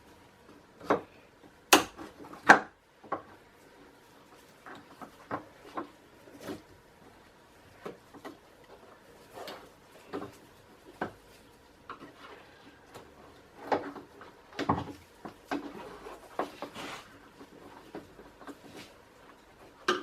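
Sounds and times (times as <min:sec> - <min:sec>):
rubbing of parts: 0:07.6 - 0:19.9.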